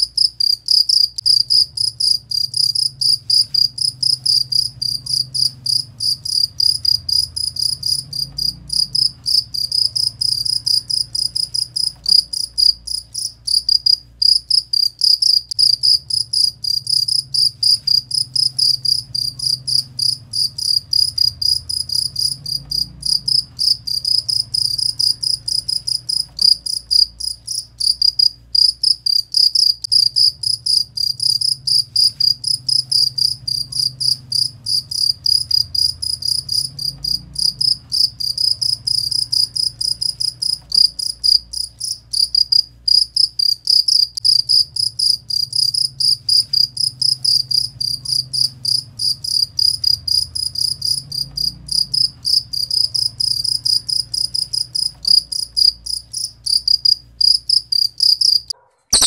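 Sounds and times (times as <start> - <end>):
faint low hum: 0.0 - 41.8
cricket chirping: 0.0 - 59.0.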